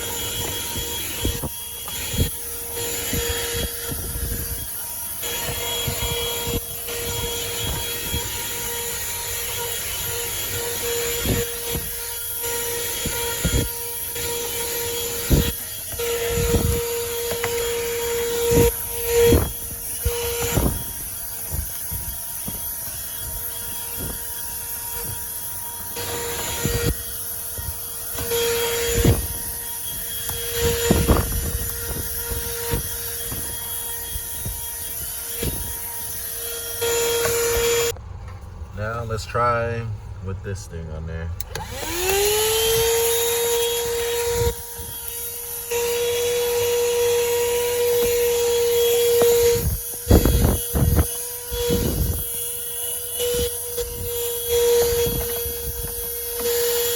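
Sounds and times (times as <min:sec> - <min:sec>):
handheld vacuum whining: 0:00.0 - 0:40.2, 0:41.4 - 0:56.9
nozzle knocking and scraping: 0:41.5 - 0:56.9.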